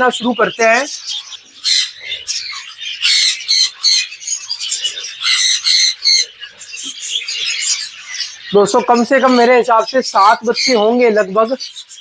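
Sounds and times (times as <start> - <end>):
budgerigars chattering: 0.0 - 12.0.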